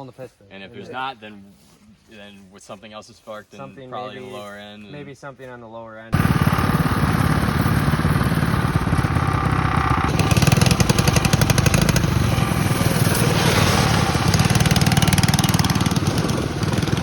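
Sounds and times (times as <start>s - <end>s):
small diesel engine running hard: 6.2s - 17.0s.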